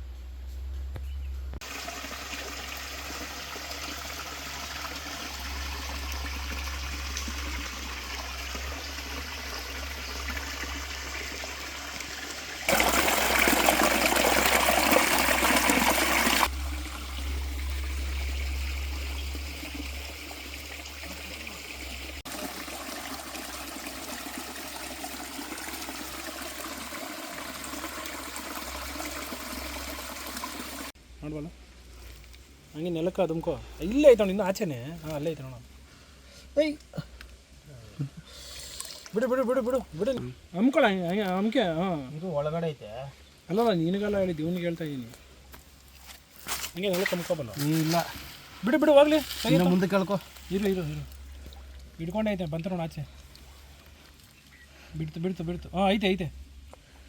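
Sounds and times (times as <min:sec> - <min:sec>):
river water rushing: 0:11.7 - 0:17.1.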